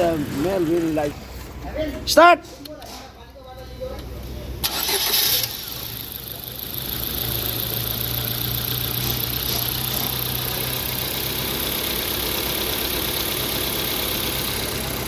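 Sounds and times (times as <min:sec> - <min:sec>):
car engine starting and idling: 0:00.0 - 0:01.4, 0:04.4 - 0:15.0.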